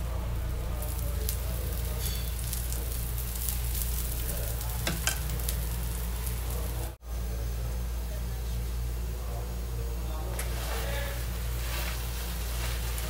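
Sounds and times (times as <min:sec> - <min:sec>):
flatbread sizzling in ghee: 0:00.0 - 0:13.0.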